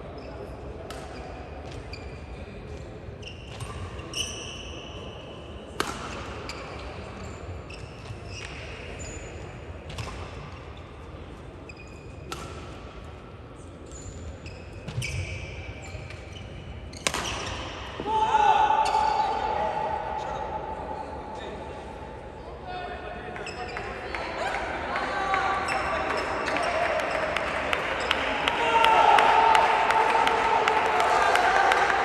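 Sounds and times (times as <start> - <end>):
rackets hitting shuttlecock: 5.8 - 6.4, 12.3 - 13.0, 16.9 - 18.1
shoes squeaking on court floor: 11.7 - 12.5, 13.8 - 17.6, 23.4 - 24.0.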